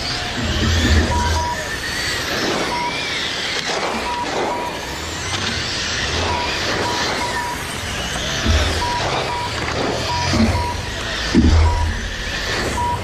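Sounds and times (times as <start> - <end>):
rc car motors whining: 0.0 - 13.0
tire noise: 0.0 - 13.0
short steady beep: 0.8 - 1.7, 6.2 - 7.6, 8.4 - 12.0, 12.6 - 13.0.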